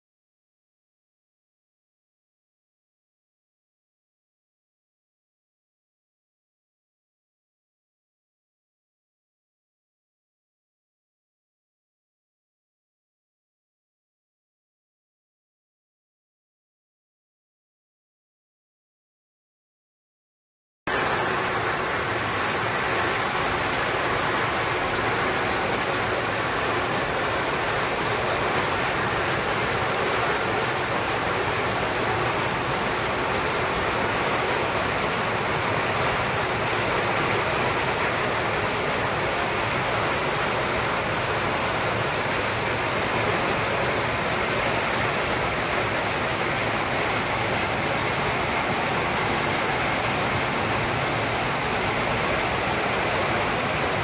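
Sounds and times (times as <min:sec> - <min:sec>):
rushing water: 0:20.9 - 0:54.0.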